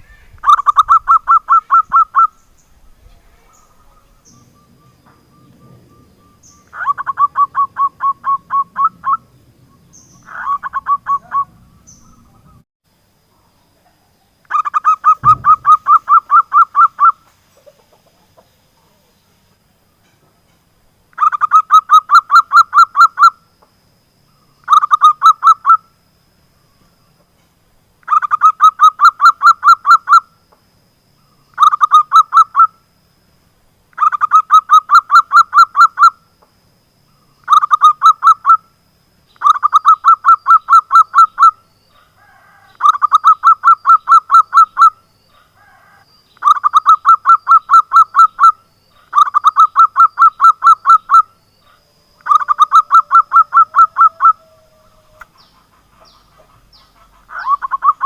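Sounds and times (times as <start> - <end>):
dove calling in staccato notes: 14.4 - 18.5, 24.6 - 25.8, 31.5 - 32.7, 37.4 - 38.6, 39.4 - 41.6, 42.3 - 58.0.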